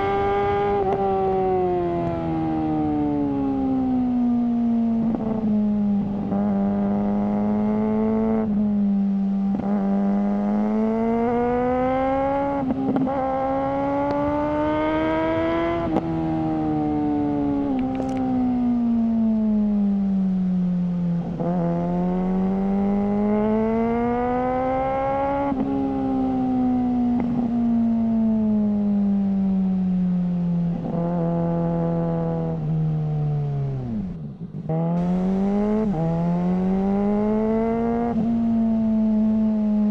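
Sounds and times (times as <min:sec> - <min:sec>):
motorcycle engine revving: 0:00.0 - 0:19.8, 0:21.0 - 0:28.7, 0:30.6 - 0:39.9.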